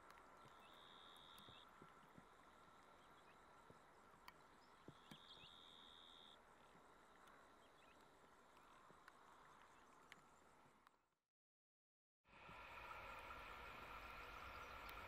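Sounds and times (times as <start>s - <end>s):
soft ticks: 0.0s - 5.8s, 7.2s - 11.0s
faint high whine: 0.0s - 10.9s, 12.3s - 15.0s
faint outdoor hiss: 0.0s - 11.0s, 12.3s - 15.0s.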